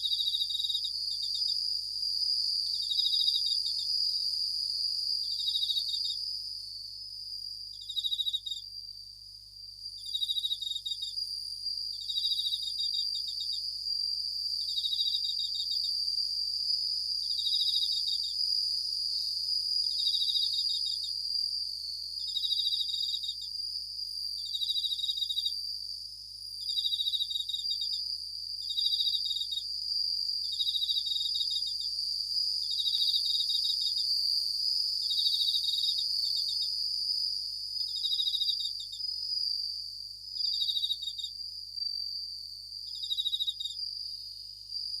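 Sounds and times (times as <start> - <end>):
crickets trilling: 0.0 - 45.0
steady high-pitched hiss: 0.0 - 45.0.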